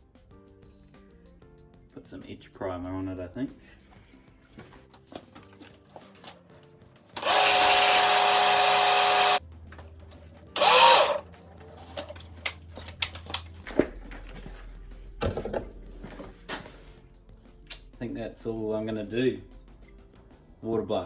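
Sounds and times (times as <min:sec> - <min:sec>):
pressure washer spraying: 0:07.2 - 0:09.4, 0:10.6 - 0:11.2.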